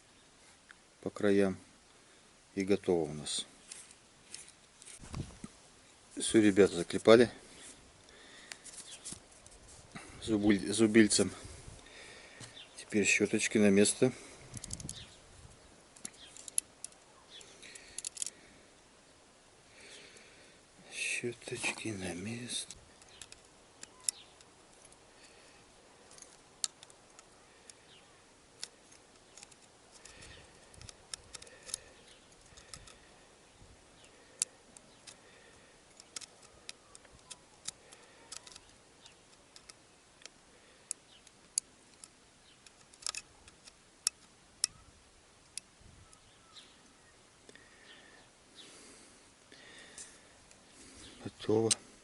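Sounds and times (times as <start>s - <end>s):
small parts clicking and tapping: 14.5s - 15.0s, 16.0s - 18.4s, 21.8s - 25.4s, 26.0s - 28.0s, 28.6s - 33.1s, 34.0s - 44.8s, 45.4s - 46.2s.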